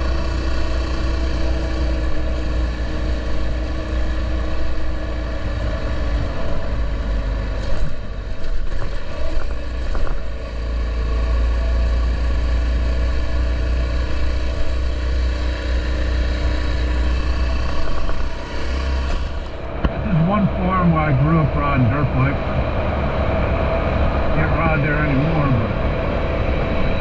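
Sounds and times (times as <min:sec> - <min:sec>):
motorcycle engine running: 0:00.0 - 0:27.0
wind rumble on microphone: 0:02.1 - 0:10.6, 0:17.4 - 0:20.1.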